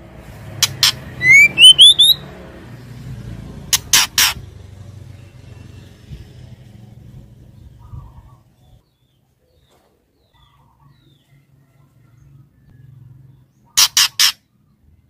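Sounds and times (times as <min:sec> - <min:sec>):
bird call notes: 0:00.6 - 0:02.3, 0:13.7 - 0:14.5.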